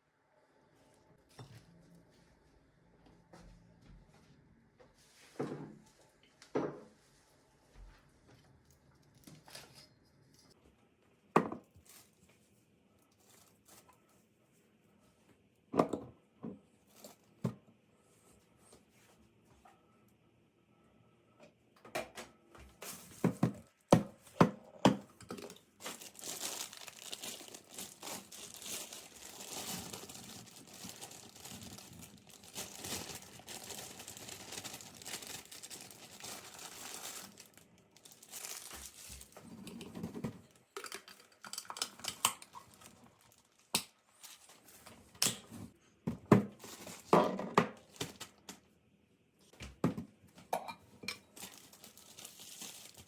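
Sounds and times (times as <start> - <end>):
packaging crinkling and rustling: 25.3 - 40.3, 40.9 - 44.9, 46.6 - 47.1, 47.8 - 48.6, 51.3 - 53.0.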